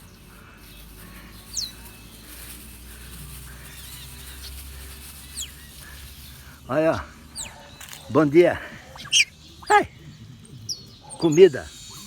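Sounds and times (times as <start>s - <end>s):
bird chirping: 0.0s - 12.0s
low outdoor rumble: 0.0s - 12.0s.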